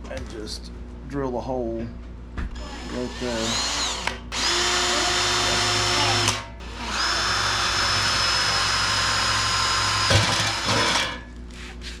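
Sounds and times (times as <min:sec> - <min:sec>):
power drill drilling into steel: 0:02.6 - 0:11.1
drill jolt: 0:02.6 - 0:11.2.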